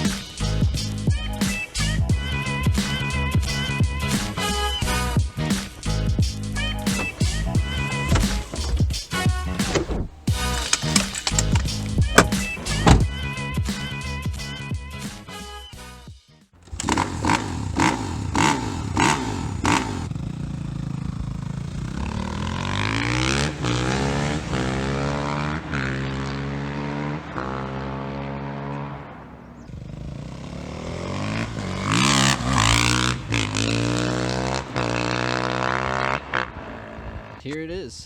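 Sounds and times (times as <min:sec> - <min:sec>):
car engine accelerating: 0:00.0 - 0:14.6, 0:16.6 - 0:37.4
sharp knocks: 0:10.8 - 0:13.0.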